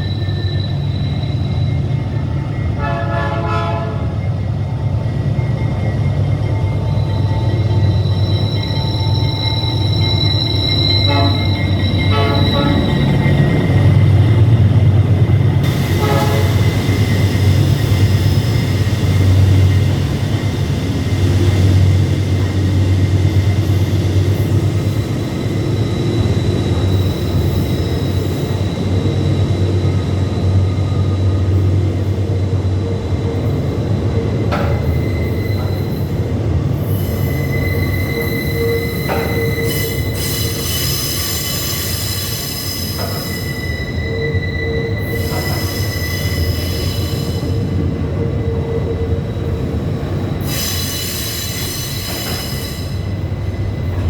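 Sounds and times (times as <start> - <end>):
wheels squealing on rails: 0.0 - 54.0
train cars clattering: 5.4 - 32.1, 33.4 - 36.8, 37.5 - 47.7, 49.9 - 54.0
diesel locomotive rumble: 52.2 - 54.0.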